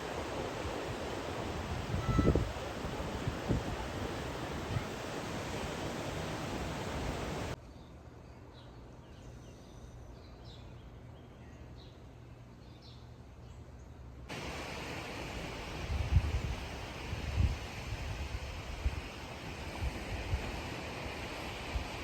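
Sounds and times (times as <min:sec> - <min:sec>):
wind and surf rushing: 0:00.0 - 0:07.6, 0:14.3 - 0:22.0
wind buffeting microphone: 0:00.0 - 0:07.6, 0:14.3 - 0:22.0.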